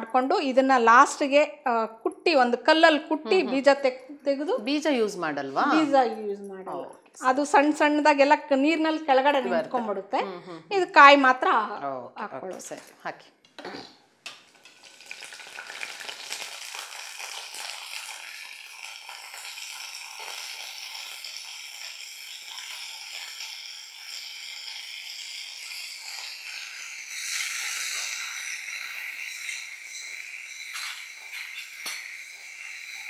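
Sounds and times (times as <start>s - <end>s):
berries sizzling in oil: 14.3s - 33.0s.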